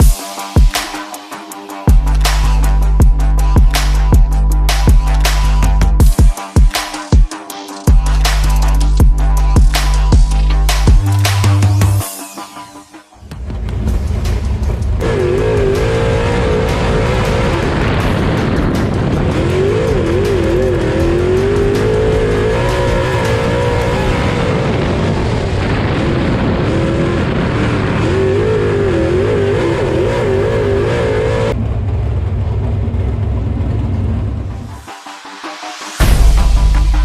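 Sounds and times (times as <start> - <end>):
background music: 0.0 - 31.6, 34.3 - 37.0
race car engines: 6.9 - 36.1.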